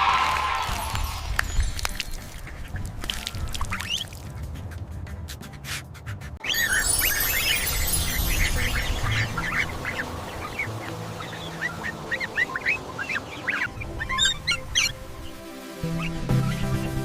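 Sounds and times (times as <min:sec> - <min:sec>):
duckling peeping: 0:01.9 - 0:04.2, 0:06.4 - 0:16.9.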